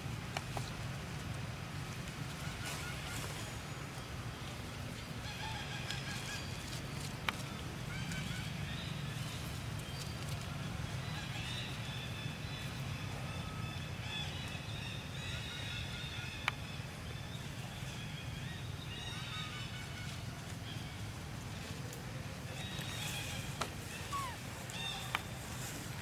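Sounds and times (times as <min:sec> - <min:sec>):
monkeys calling: 0:23.3 - 0:25.3.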